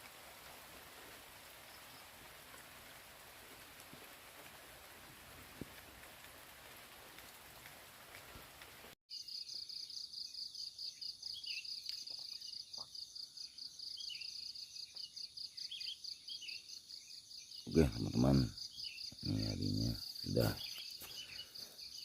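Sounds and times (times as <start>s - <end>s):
steady rain: 0.0s - 9.0s.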